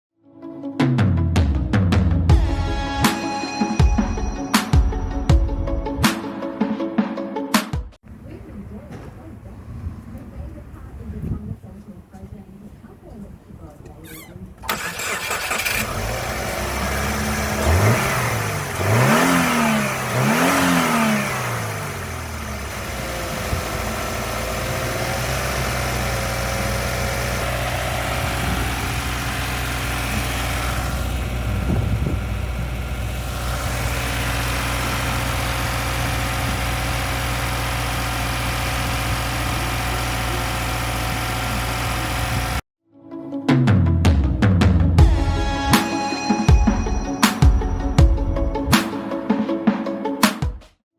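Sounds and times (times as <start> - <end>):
car engine starting and revving: 8.1 - 11.1, 14.1 - 42.6
car engine idling: 14.1 - 42.6.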